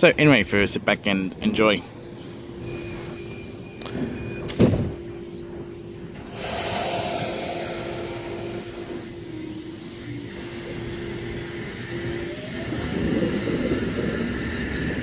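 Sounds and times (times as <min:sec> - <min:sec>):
diesel railcar humming: 0:00.0 - 0:15.0
compressed air hiss: 0:06.2 - 0:09.1.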